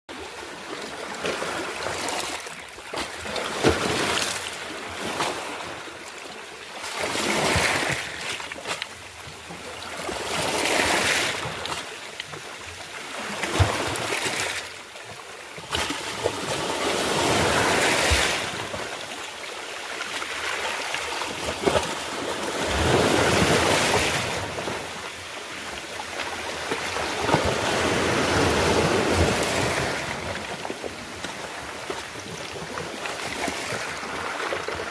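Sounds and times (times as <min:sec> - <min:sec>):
sea waves washing in: 0:20.0 - 0:34.9.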